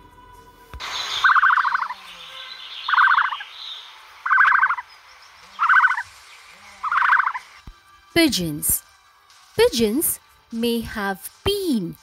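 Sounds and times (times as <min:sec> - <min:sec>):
bird harsh trilled call: 0:00.9 - 0:04.9, 0:05.5 - 0:06.1, 0:06.8 - 0:07.4.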